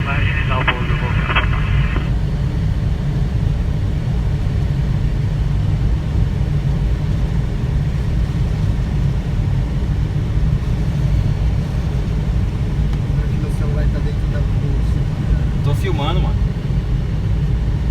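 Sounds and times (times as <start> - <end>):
air rushing past cockpit: 0.0 - 2.2.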